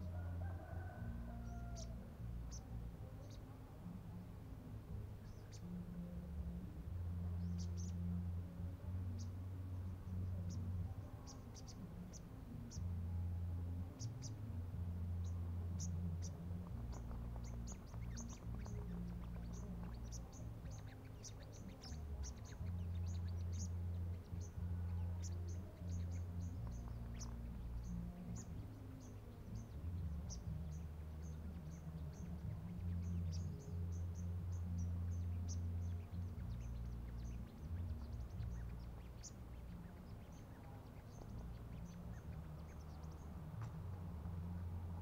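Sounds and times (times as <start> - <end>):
low rumble: 0.0 - 45.0
small birds chirping: 0.0 - 45.0.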